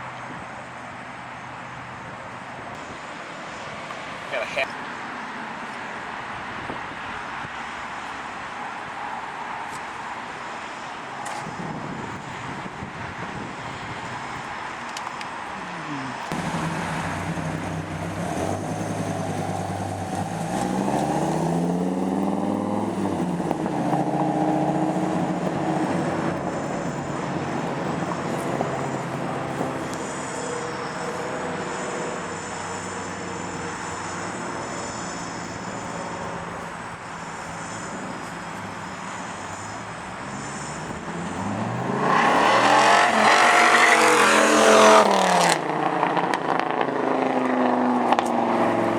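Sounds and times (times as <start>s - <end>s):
car engine revving: 16.1s - 48.9s.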